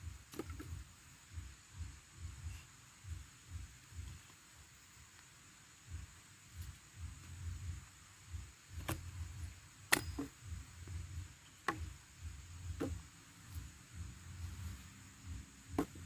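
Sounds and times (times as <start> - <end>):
low rumble: 10.4 - 16.0.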